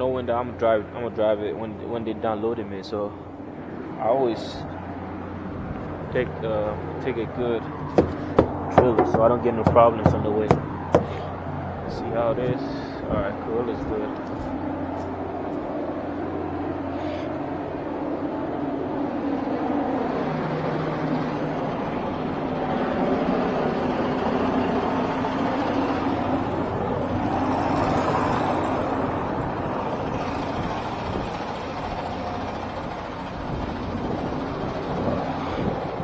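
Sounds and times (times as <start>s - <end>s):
diesel truck engine running: 23.7s - 36.0s.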